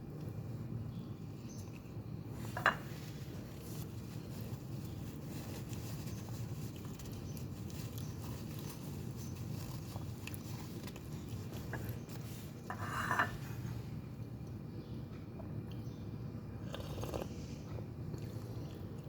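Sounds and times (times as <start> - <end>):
soft chewing: 1.0 - 19.0
cutlery scrape: 12.7 - 13.6.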